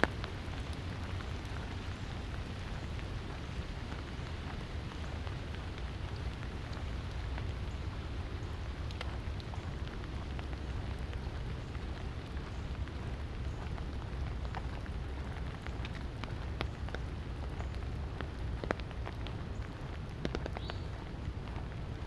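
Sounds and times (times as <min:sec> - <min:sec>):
light rain falling: 0:00.0 - 0:22.0
raindrops landing close by: 0:00.0 - 0:22.0.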